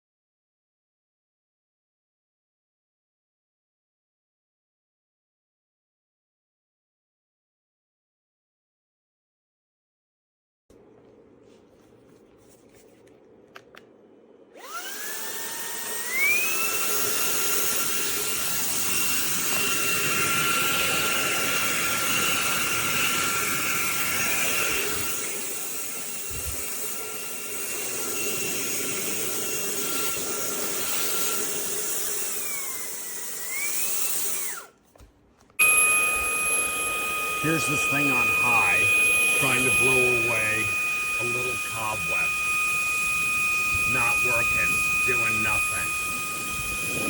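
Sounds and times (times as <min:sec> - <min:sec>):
handheld vacuum motor whine: 0:14.5 - 0:34.9, 0:35.6 - 0:47.0.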